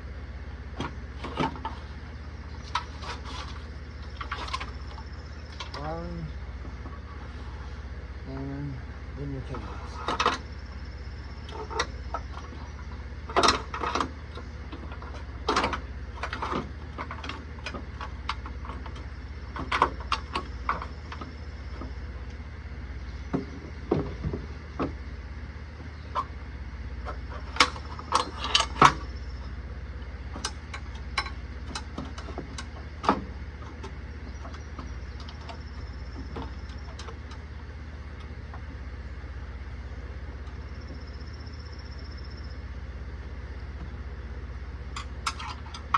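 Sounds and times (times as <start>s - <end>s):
low steady hum: 0.0s - 45.9s
metal parts and tools clanking: 27.0s - 29.2s, 30.3s - 37.5s, 44.9s - 45.9s.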